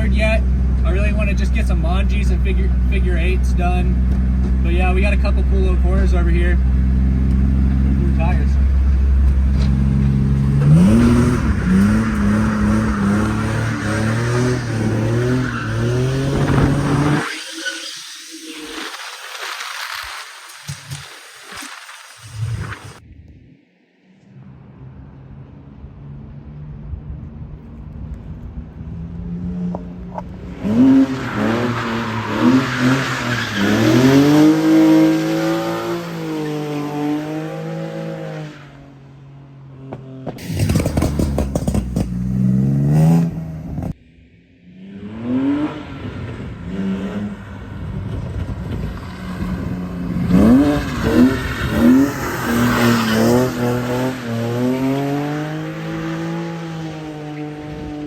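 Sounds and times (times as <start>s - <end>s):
car engine revving: 0.0s - 19.1s, 29.2s - 38.8s, 39.8s - 44.0s, 44.6s - 58.0s
tyre and spray noise: 14.6s - 23.0s.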